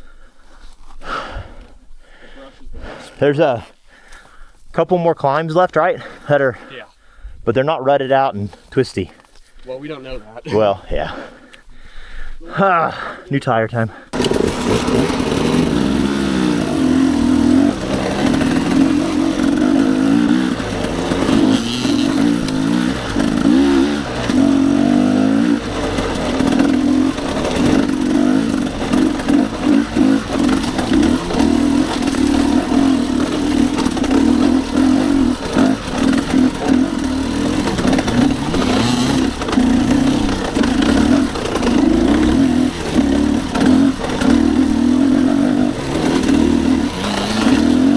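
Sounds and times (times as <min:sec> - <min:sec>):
dirt bike engine revving: 0:14.1 - 0:47.9.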